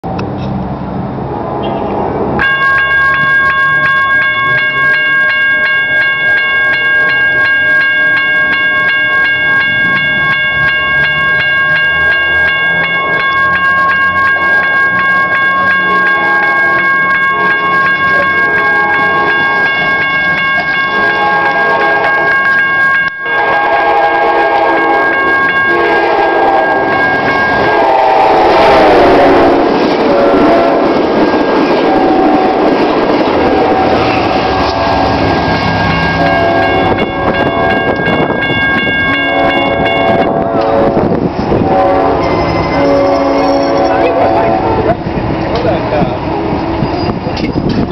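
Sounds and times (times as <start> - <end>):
locomotive engine rumbling: 0.0 - 47.9
railroad crossing bell ringing: 2.4 - 47.9
train horn blasts: 15.7 - 45.0.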